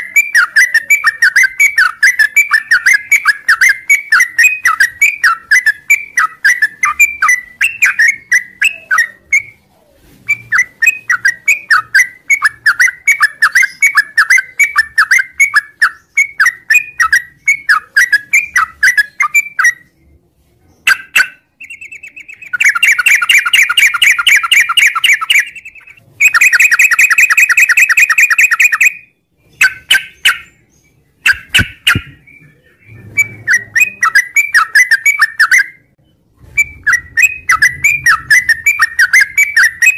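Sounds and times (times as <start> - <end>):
bulbul chattering song: 0.0 - 9.6, 10.3 - 19.9, 20.8 - 36.0, 36.6 - 39.9
fast bird trills: 31.2 - 32.2.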